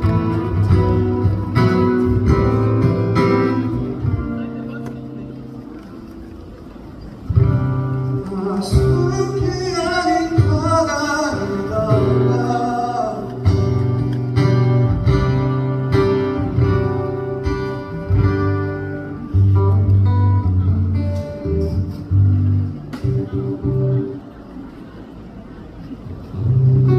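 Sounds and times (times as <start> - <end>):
bass notes: 0.0 - 5.8, 13.3 - 24.3
strummed acoustic guitar: 0.0 - 6.2, 7.2 - 24.2.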